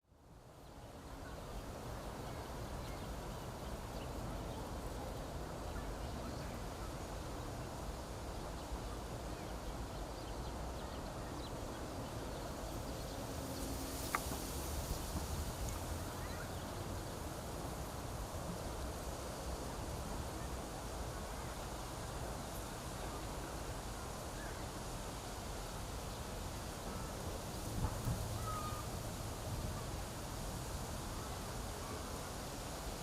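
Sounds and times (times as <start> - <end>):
wind rustling through reeds: 0.2 - 33.0
wind rumble on microphone: 26.9 - 32.0.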